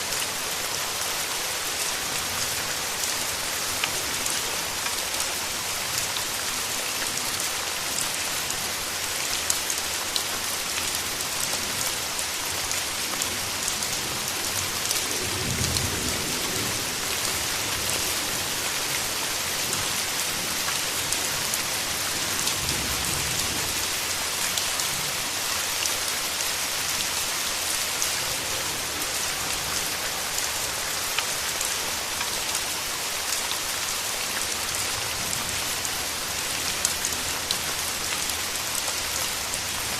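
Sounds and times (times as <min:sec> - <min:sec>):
rain patter: 0:00.0 - 0:39.9.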